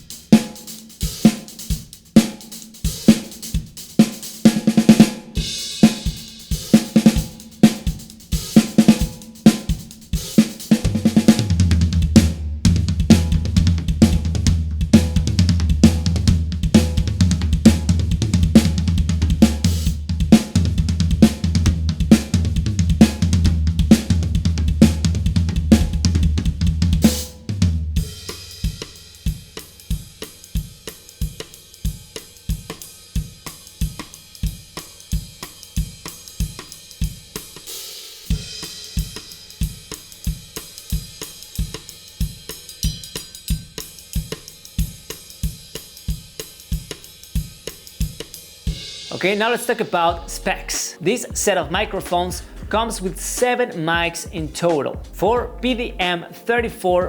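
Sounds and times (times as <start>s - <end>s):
drum kit groove: 0.0s - 57.0s
sustained low bass: 51.7s - 53.4s, 54.3s - 56.0s.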